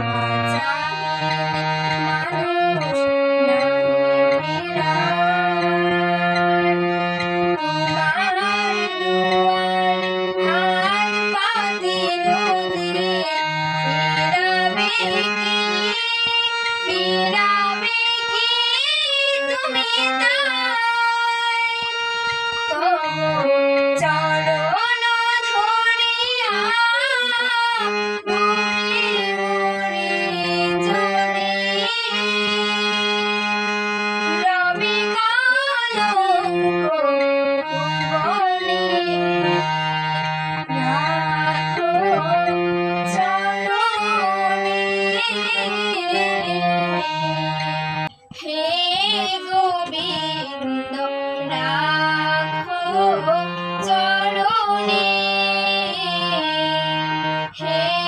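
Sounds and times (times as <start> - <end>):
devotional song with held chords: 0.0 - 58.0.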